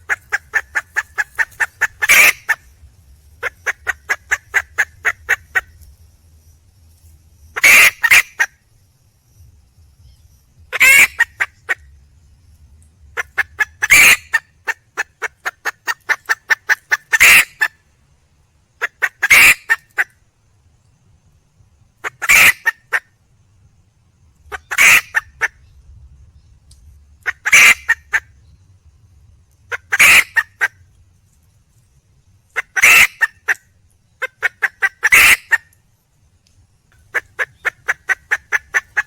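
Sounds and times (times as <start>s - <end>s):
hen clucking: 0.0s - 2.6s, 3.4s - 5.7s, 10.7s - 11.8s, 18.8s - 20.0s, 22.0s - 23.0s, 24.5s - 25.5s, 27.2s - 28.2s, 29.7s - 30.7s, 32.6s - 33.6s, 34.2s - 35.7s, 37.1s - 39.0s
harsh hen call: 32.6s - 33.3s.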